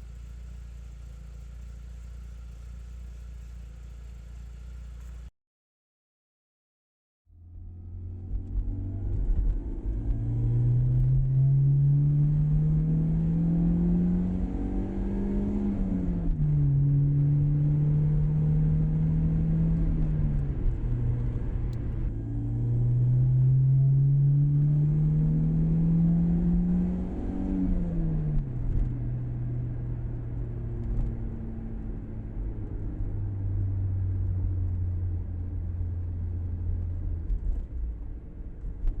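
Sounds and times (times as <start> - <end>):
car engine revving: 7.9 - 29.4.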